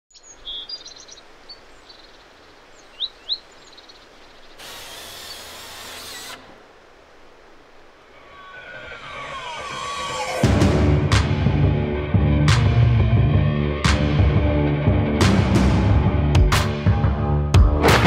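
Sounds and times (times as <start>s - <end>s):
birds chirping: 0.1s - 10.5s.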